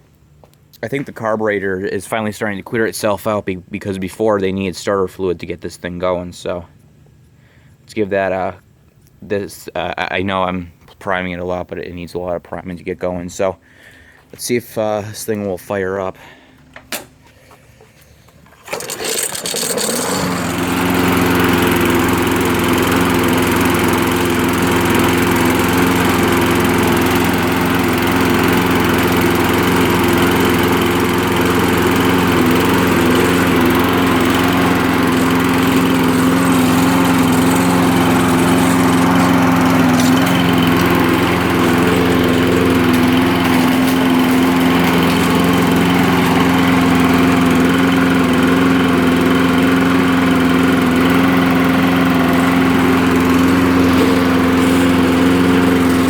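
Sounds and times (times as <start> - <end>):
lawn mower engine starting and running: 16.5 - 56.0.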